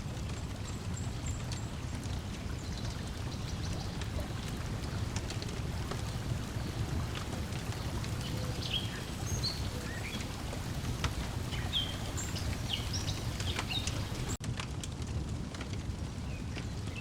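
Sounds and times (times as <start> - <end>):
water lapping: 0.0 - 14.4
wood fire crackling and popping: 0.0 - 17.0
birds chirping: 0.7 - 14.4.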